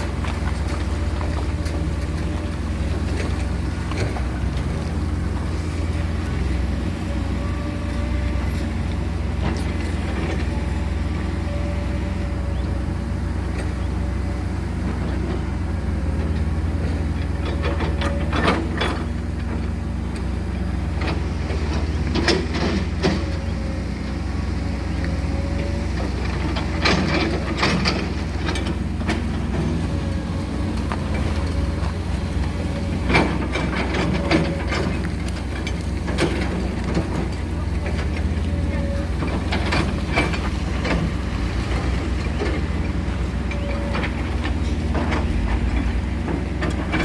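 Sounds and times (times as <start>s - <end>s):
diesel engines rumbling: 0.0s - 47.0s
knocks and clanks: 39.2s - 47.0s.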